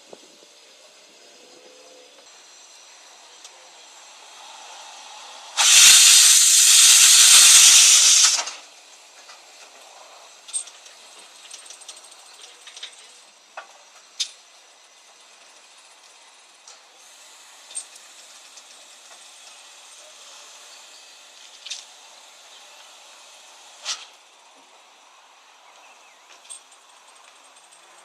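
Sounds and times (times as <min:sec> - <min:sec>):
locomotive steam hiss: 0:02.3 - 0:10.4, 0:17.0 - 0:25.0.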